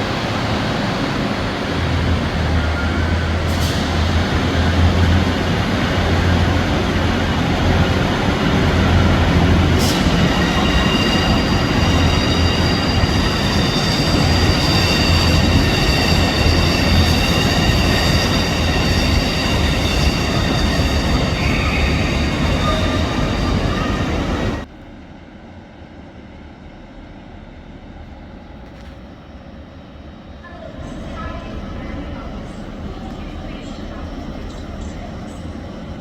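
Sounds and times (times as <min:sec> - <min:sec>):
train rumbling on rails: 0:00.0 - 0:36.0
high-pitched wheel squeal: 0:08.9 - 0:24.6.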